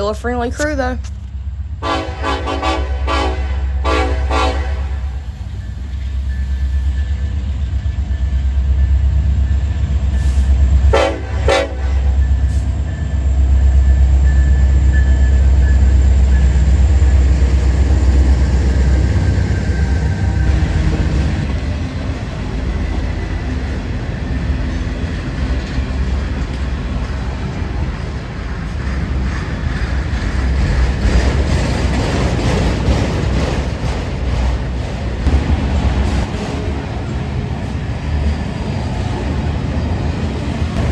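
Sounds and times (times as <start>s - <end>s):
locomotive engine drone: 0.0s - 40.9s
train horn blasts: 1.8s - 5.2s, 10.9s - 12.4s.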